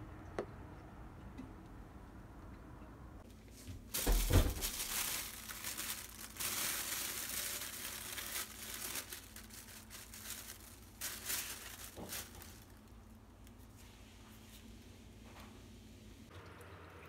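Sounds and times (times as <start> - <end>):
plastic bag crinkling: 3.6 - 13.7.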